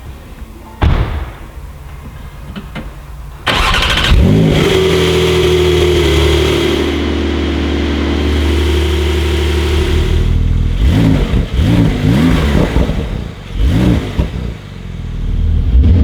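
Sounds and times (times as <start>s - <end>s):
thud: 0.8s - 1.6s
car engine starting and idling: 1.6s - 16.0s.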